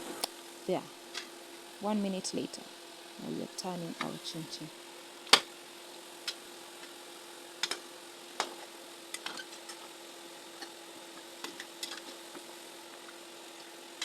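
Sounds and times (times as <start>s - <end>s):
dough deep-frying in oil: 4.8s - 14.0s.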